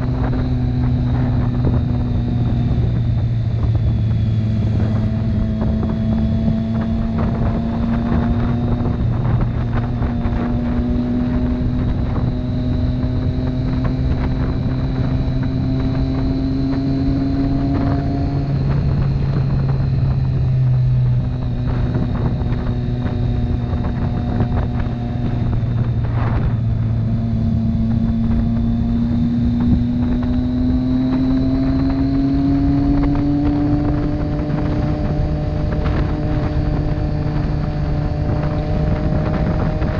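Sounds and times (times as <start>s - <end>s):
motorcycle engine accelerating: 0.0s - 39.9s
wind noise on microphone: 0.0s - 39.9s.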